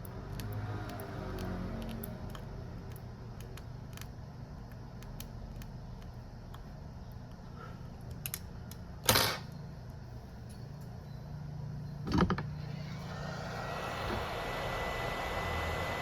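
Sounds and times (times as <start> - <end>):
tools clattering on a bench: 9.1 - 9.5.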